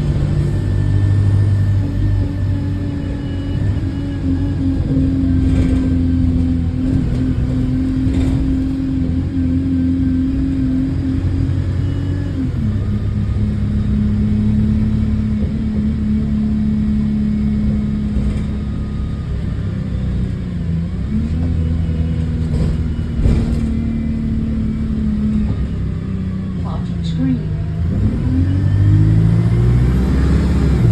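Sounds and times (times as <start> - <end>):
bus engine droning: 0.0 - 30.9.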